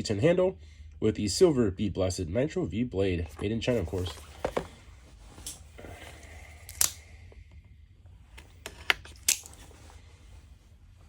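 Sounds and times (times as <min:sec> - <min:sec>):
packaging rustling: 0:03.4 - 0:05.8.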